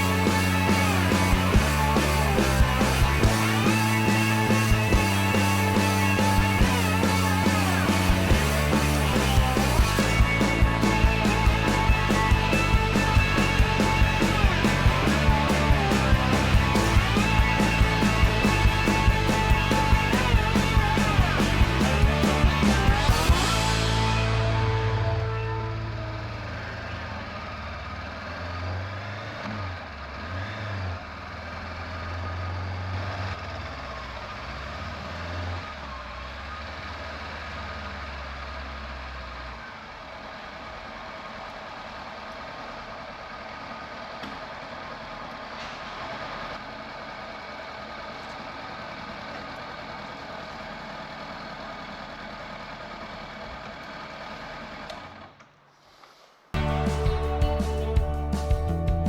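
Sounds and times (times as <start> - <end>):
motorcycle engine rumbling: 0.0 - 27.9, 56.6 - 59.0.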